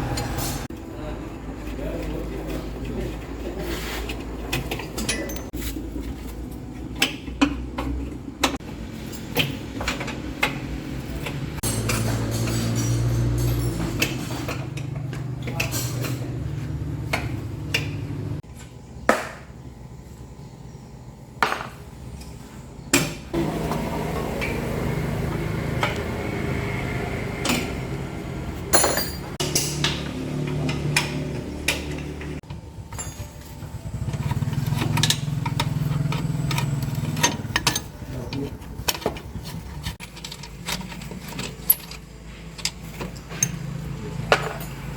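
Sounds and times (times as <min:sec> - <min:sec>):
metal tools clinking on metal: 0:04.5 - 0:05.7, 0:11.2 - 0:16.7, 0:28.7 - 0:44.9.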